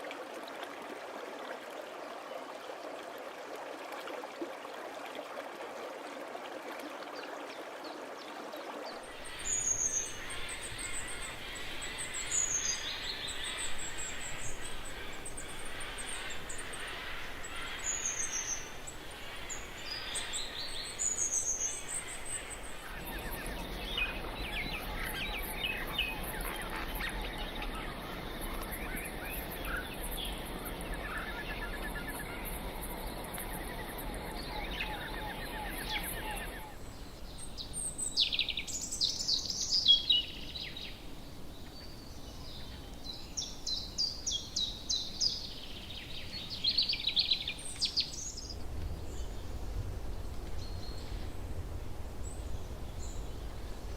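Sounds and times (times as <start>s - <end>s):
high insect-like hiss: 9.1s - 36.8s
rapid trilling bird calls: 9.1s - 36.8s
birds chirping and calling: 9.2s - 36.7s.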